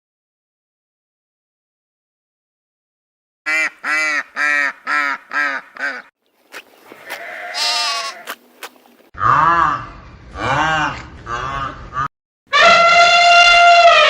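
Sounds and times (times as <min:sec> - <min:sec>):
animal cries: 0:07.0 - 0:08.4.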